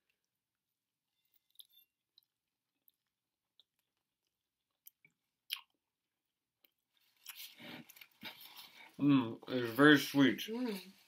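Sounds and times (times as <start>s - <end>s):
people chewing: 6.6s - 9.0s.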